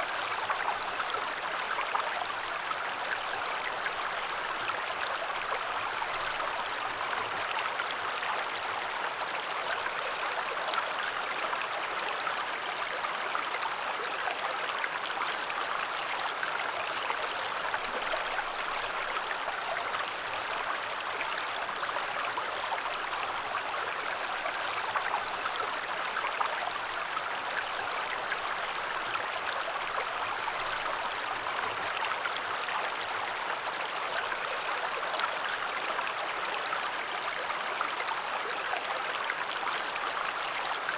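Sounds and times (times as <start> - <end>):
river water rushing: 14.6 - 19.4, 39.1 - 40.9.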